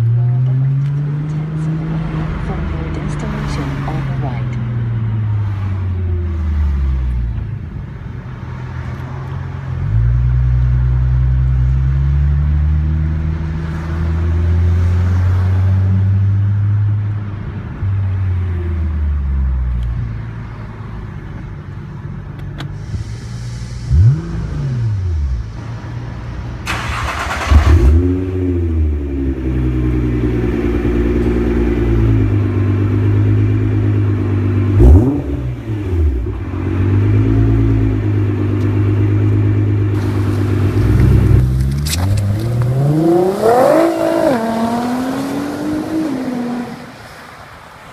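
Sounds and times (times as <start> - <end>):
loud hiss: 22.8 - 24.3
car engine running: 37.6 - 44.4.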